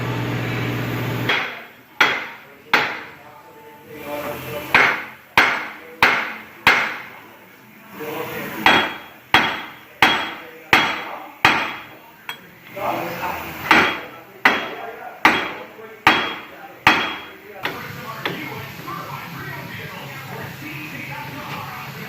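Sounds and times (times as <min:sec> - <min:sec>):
hammer striking metal hub: 0:08.6 - 0:12.5, 0:13.6 - 0:18.4.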